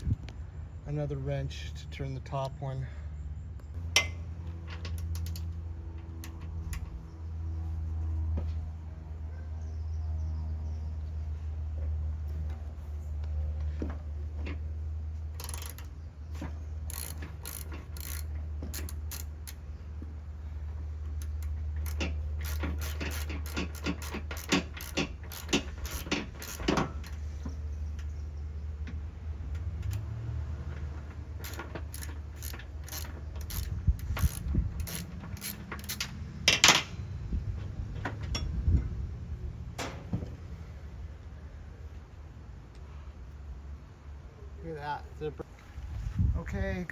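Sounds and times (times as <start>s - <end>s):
ratchet wrench clicking: 4.8s - 5.6s, 15.3s - 15.9s, 16.9s - 19.6s, 21.2s - 27.2s, 31.4s - 36.9s.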